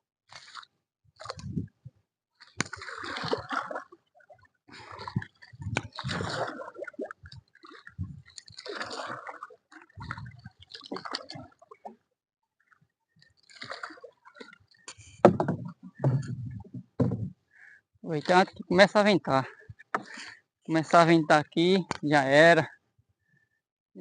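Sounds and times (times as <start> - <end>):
water splashing and sloshing: 0.3 - 22.6
sharp knocks: 15.2 - 17.4.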